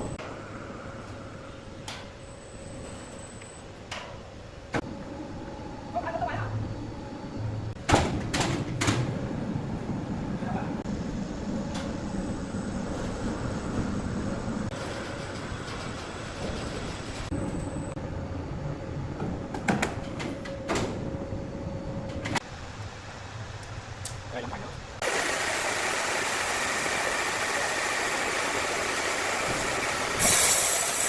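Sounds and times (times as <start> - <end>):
saw rumbling and whining: 25.0 - 31.0.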